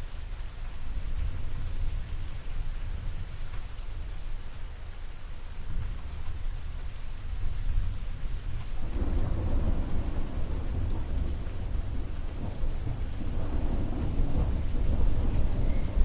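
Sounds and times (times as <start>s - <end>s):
steady rain hiss: 0.0s - 16.0s
rolling thunder: 5.6s - 16.0s.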